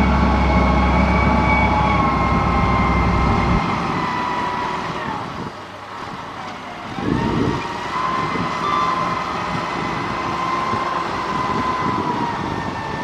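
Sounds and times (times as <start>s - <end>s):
steady whining tone: 0.0s - 5.8s
diesel construction machine engine: 0.0s - 13.0s.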